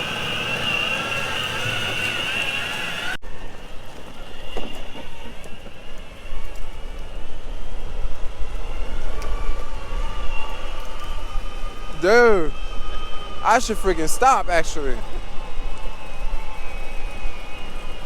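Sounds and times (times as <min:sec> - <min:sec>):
skateboard wheels rolling on pavement: 0:00.0 - 0:11.9
high motor whine: 0:00.0 - 0:18.0.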